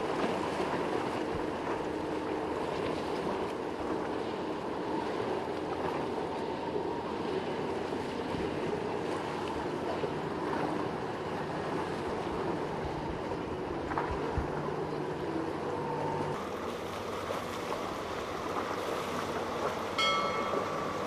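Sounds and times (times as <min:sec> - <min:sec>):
boat engines running: 0:00.0 - 0:21.0
waves washing: 0:16.2 - 0:21.0.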